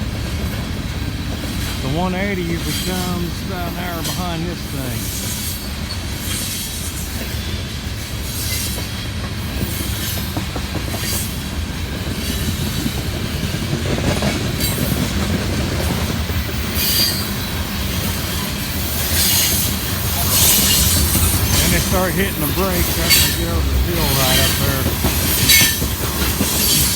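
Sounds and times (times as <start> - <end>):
train wheels rumbling on rails: 0.0 - 26.9
wheels clacking: 9.6 - 26.9
wheel squeal: 25.3 - 26.9.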